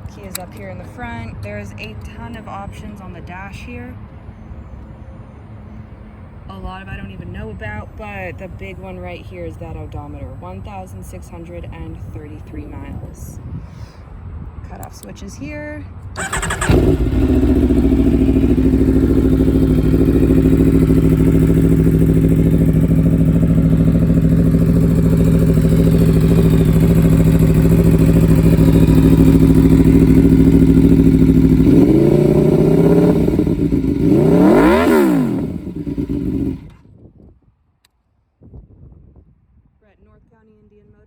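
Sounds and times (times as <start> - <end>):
motorcycle engine idling and revving: 16.0 - 37.0.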